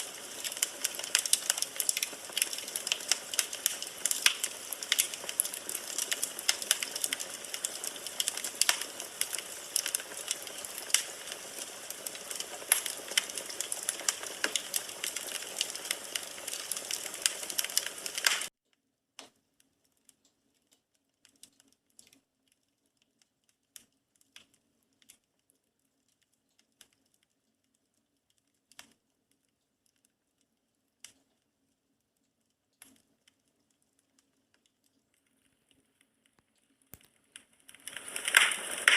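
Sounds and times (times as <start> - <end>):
fire hiss: 0.0 - 18.5, 37.8 - 38.9
firewood crackling and popping: 0.0 - 18.5, 19.2 - 38.9.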